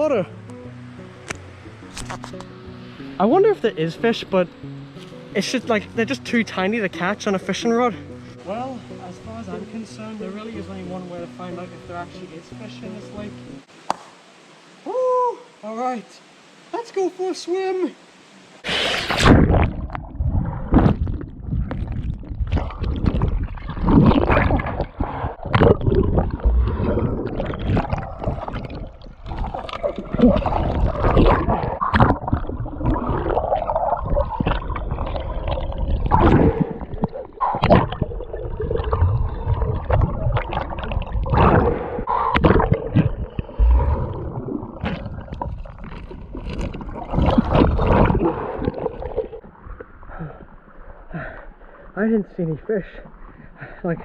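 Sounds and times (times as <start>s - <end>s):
water sloshing and splashing: 19.1s - 51.0s.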